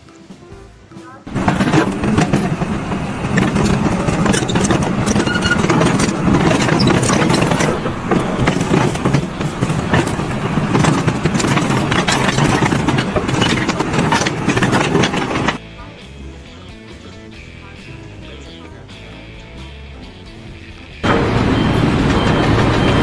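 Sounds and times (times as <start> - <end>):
engine rattling and knocking: 1.3 - 15.6
loud engine running: 1.3 - 16.4, 19.0 - 23.0.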